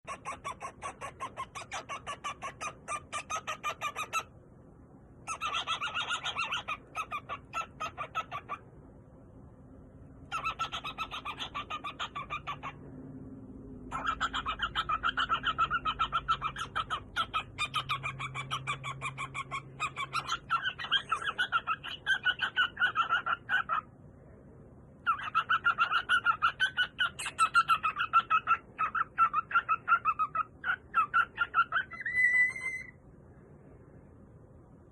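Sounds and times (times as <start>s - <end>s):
cockatiel chirping: 0.0s - 4.4s, 5.2s - 8.6s, 10.2s - 12.8s, 13.9s - 23.9s, 25.0s - 33.0s.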